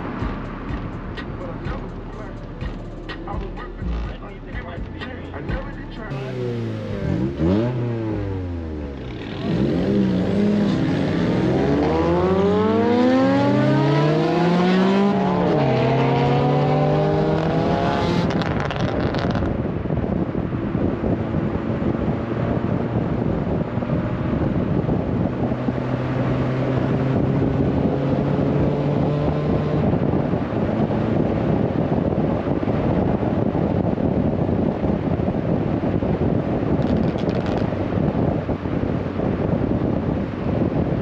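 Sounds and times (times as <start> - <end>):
car engine accelerating: 0.0 - 41.0
wind rushing past car window: 7.1 - 41.0.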